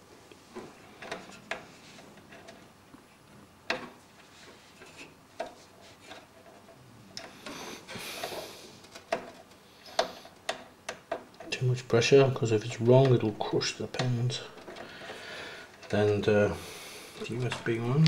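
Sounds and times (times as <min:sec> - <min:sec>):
light clicks and knocks: 0:17.2 - 0:18.0.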